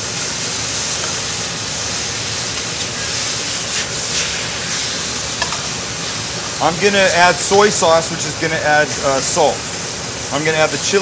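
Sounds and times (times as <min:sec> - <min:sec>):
beef sizzling in a wok: 0:00.0 - 0:11.0
spatula scraping a wok: 0:02.6 - 0:05.7.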